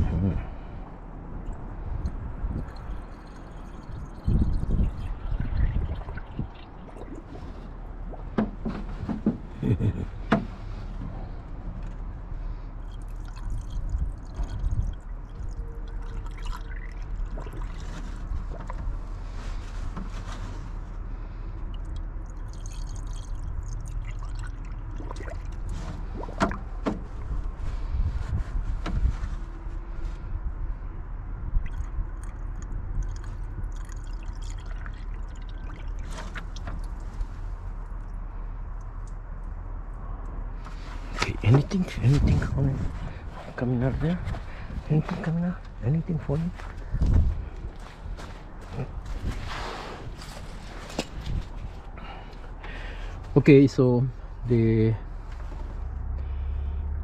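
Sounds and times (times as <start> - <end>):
liquid pouring and trickling: 2.0 - 8.6, 12.8 - 18.9, 21.7 - 26.8, 31.6 - 38.2.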